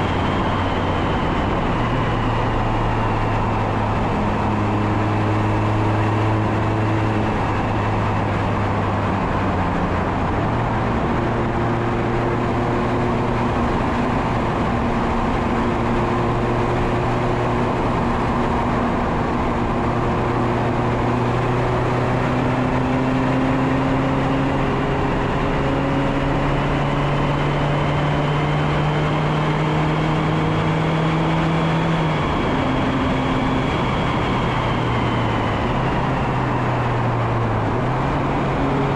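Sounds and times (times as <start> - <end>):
wind noise on microphone: 0.0 - 30.9
car engine under load: 0.0 - 38.9.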